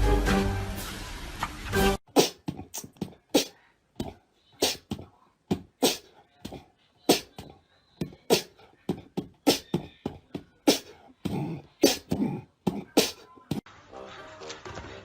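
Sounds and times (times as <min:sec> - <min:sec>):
music: 0:00.0 - 0:02.0, 0:13.7 - 0:15.0.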